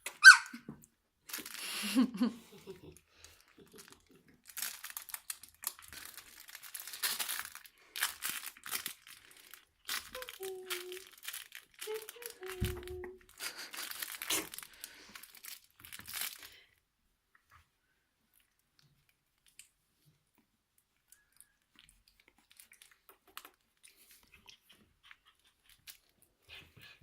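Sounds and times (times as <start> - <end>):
puppy whimper: 0.1 - 0.6
crinkling and rustling: 0.6 - 2.0, 2.6 - 17.7, 18.3 - 27.0.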